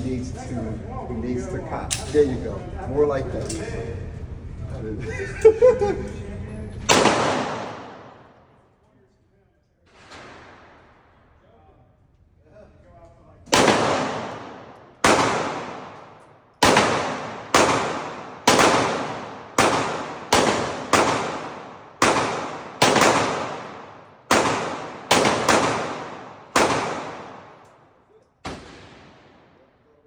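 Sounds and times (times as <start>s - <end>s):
gunshots with ringing echo: 6.9s - 8.5s, 13.5s - 27.6s, 28.4s - 29.7s.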